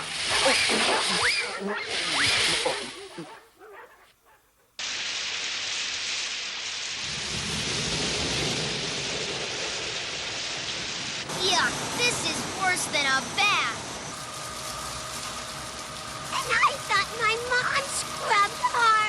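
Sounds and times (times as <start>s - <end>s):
water jets spraying onto car: 0.0s - 3.1s, 4.8s - 19.0s.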